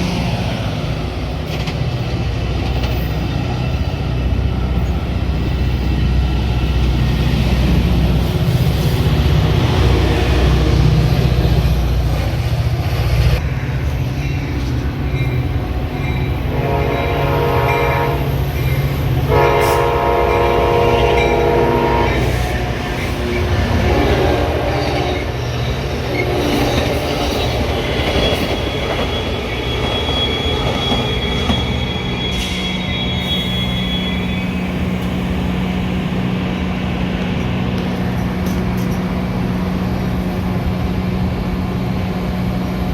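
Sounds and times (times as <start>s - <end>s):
low rumble of train: 0.0s - 42.9s
train horn blasts: 16.2s - 25.4s
thin high squeal: 28.5s - 34.8s.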